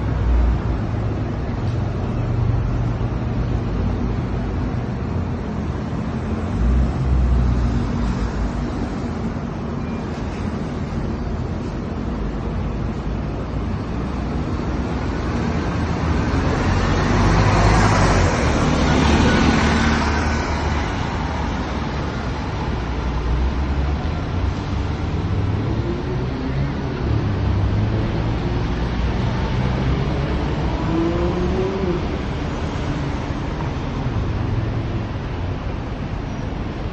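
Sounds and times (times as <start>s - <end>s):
rising engine whine: 25.6s - 32.9s.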